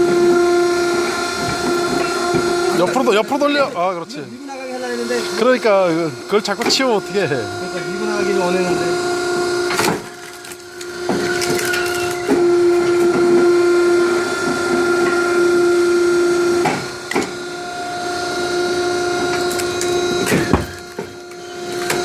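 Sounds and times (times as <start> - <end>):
firewood machine whining: 0.0 - 22.0.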